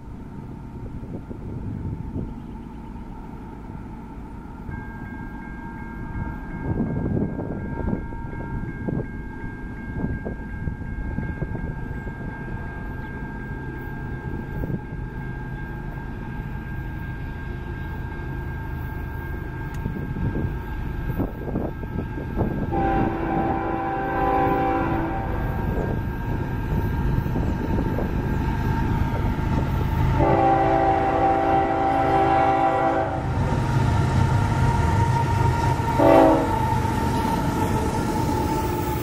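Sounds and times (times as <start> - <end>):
diesel locomotives rumbling: 0.0 - 39.0
wind buffeting microphone: 0.2 - 2.6, 6.0 - 13.0, 19.8 - 39.0
train horn: 21.2 - 26.2, 30.0 - 39.0.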